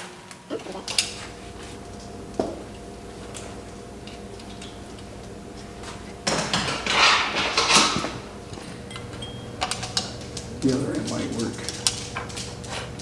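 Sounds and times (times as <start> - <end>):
steady low hum: 0.0 - 13.0
metal tools clinking: 4.1 - 12.6.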